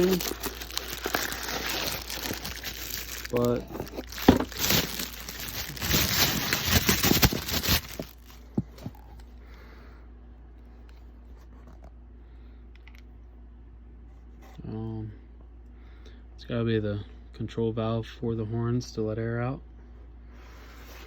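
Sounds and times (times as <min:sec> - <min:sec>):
packaging crinkling and tearing: 0:00.0 - 0:08.9.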